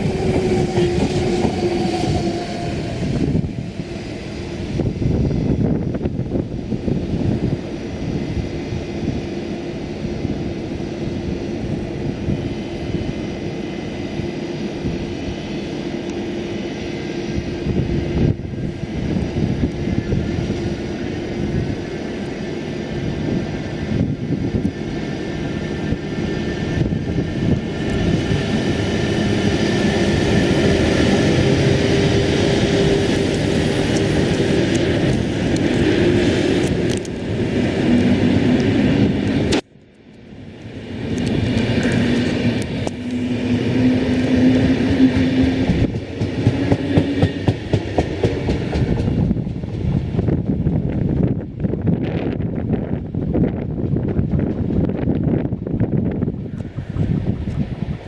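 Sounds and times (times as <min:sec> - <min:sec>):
electric locomotive cooling blowers: 0:00.0 - 0:58.0.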